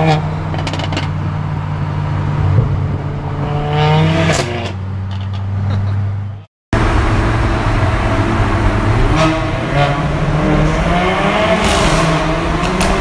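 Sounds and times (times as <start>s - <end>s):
car engine revving in tunnel: 1.1s - 5.0s, 6.8s - 13.0s.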